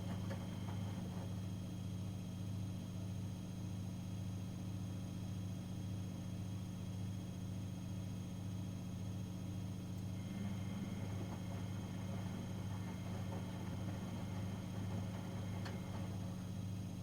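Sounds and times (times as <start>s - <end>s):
washing machine humming: 0.0s - 1.8s, 9.2s - 17.0s.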